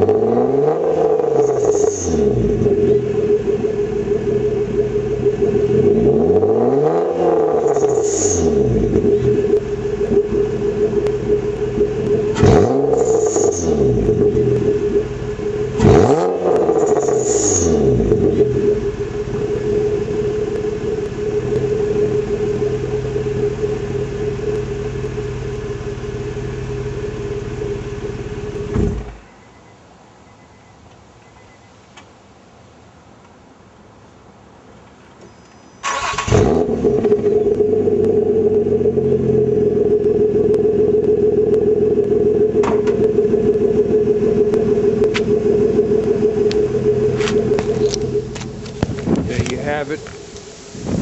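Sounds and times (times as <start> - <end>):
car engine idling and revving: 0.0 - 29.6, 34.9 - 51.0.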